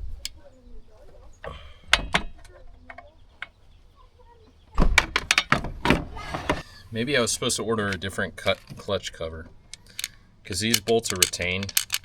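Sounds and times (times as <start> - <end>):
hardware clicking and knocking: 1.0 - 3.6, 4.8 - 6.7, 7.5 - 12.0.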